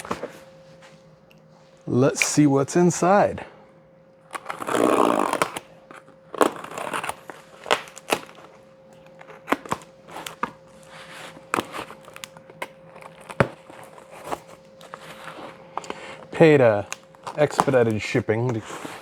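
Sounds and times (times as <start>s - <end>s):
faint steady hum: 0.0s - 19.0s
package tearing open: 4.3s - 19.0s
packaging rustling and crinkling: 4.4s - 19.0s.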